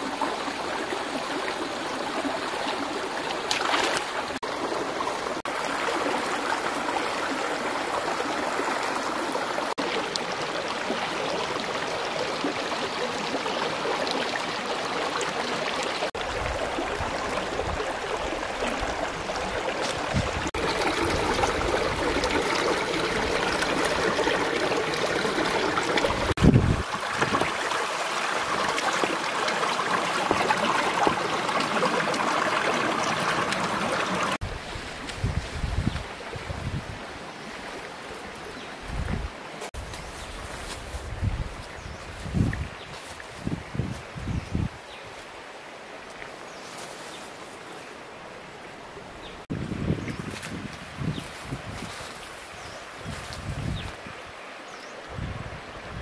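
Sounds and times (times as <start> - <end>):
running water: 0.0 - 56.0.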